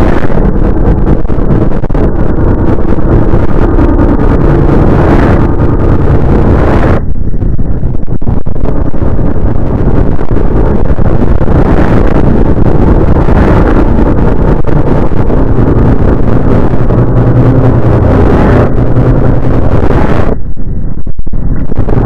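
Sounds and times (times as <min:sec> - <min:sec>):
rumbling roar: 0:00.0 - 0:20.4, 0:21.4 - 0:22.0.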